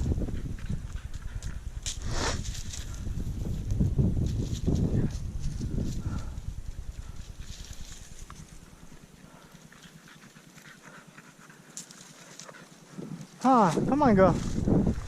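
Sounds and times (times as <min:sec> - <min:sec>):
wind rumble on microphone: 0:00.0 - 0:09.4, 0:12.9 - 0:15.0
faint rustling: 0:00.7 - 0:15.0
light ticks of movement: 0:07.0 - 0:13.4.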